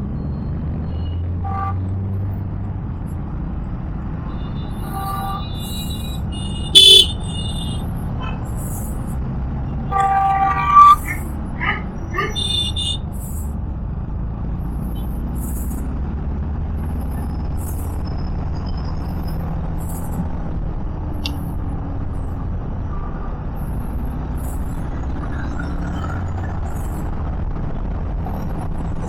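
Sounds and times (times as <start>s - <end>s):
motorcycle engine: 0.0s - 22.8s
car horn beeps: 0.2s - 2.0s, 4.1s - 8.7s, 9.7s - 13.1s.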